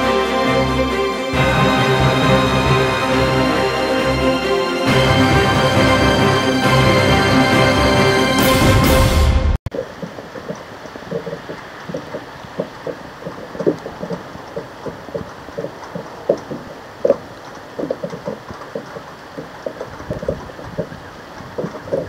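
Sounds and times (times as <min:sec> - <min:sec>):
hiss of wind and rain: 0:09.7 - 0:22.0
raindrops tapping on hard surface: 0:09.7 - 0:22.0.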